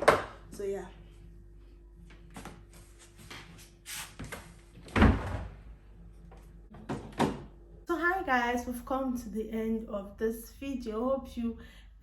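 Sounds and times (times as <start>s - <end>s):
faint steady hum: 0.0s - 3.7s, 7.4s - 12.0s.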